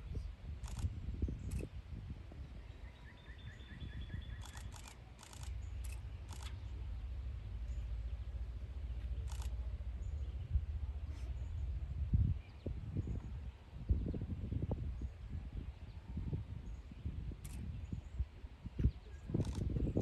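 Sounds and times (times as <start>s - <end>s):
low steady rumble: 3.6s - 18.3s
camera shutters clicking: 4.4s - 6.6s, 9.2s - 9.6s, 19.4s - 19.7s.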